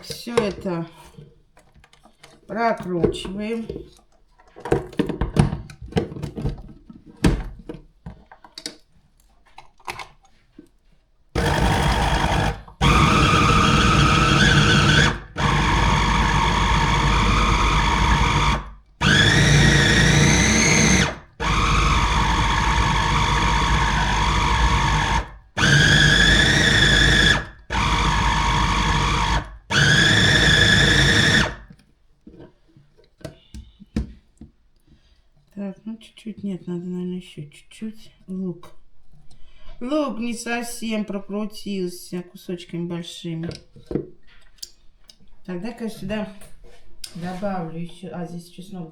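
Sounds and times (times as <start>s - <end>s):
clicks and handling sounds: 0.0s - 11.0s
electric grinder motor whining: 11.4s - 31.7s.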